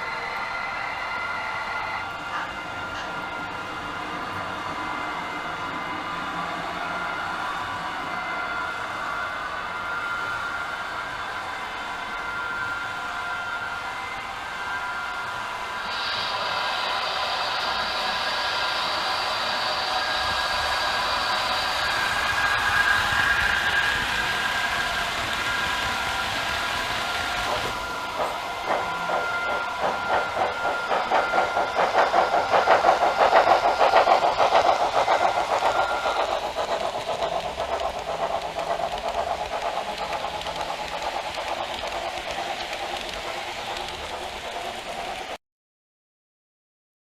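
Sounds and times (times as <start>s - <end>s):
model train rolling rumble: 13.4s - 45.4s.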